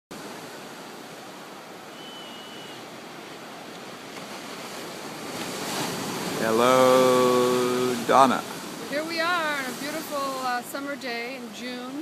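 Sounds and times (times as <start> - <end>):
rushing outdoor background noise: 0.1 - 12.0
thin high whistle: 1.9 - 2.9.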